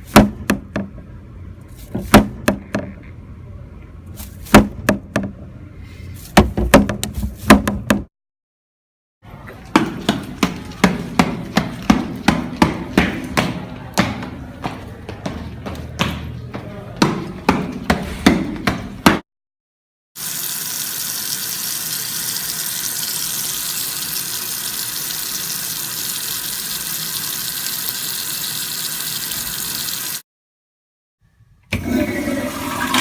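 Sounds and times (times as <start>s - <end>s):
running water: 20.2s - 30.2s.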